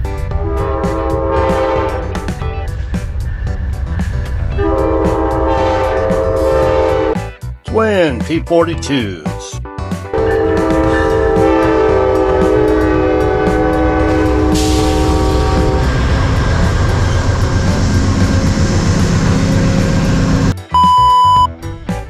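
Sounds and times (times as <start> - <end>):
train rumbling past: 0.0 - 7.2, 10.1 - 20.6
train air horn chord: 0.3 - 2.2, 4.5 - 7.2, 10.1 - 16.4
rail hiss: 12.3 - 20.5
short electronic beep: 20.7 - 21.5.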